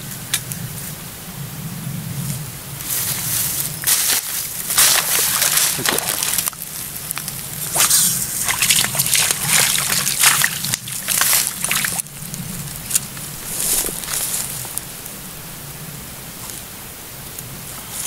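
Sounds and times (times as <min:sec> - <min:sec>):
water splashes: 0:04.6 - 0:14.2
water sloshing and trickling: 0:04.6 - 0:14.4.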